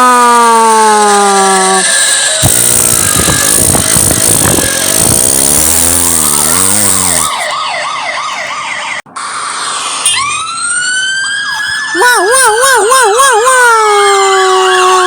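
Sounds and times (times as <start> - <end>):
rising siren: 0.6 - 15.0
cartoon rattling engine: 1.3 - 7.5
fast warbling siren: 1.3 - 15.0.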